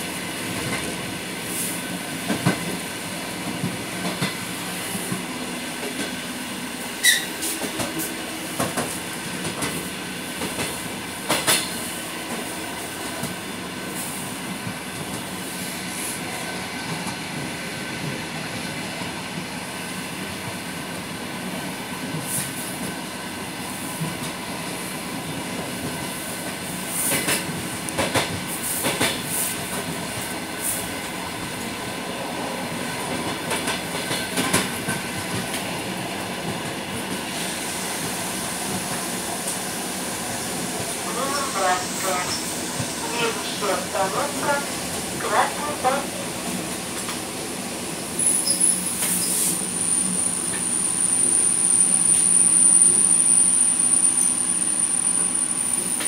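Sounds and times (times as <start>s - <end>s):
train wheels rumbling on rails: 0.0s - 56.0s
train squeal: 7.0s - 7.6s, 48.2s - 56.0s.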